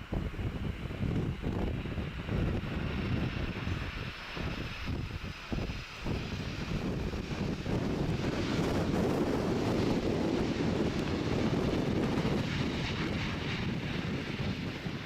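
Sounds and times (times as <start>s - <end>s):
jet engine rumble: 0.0s - 15.0s
wind buffeting microphone: 0.0s - 15.0s.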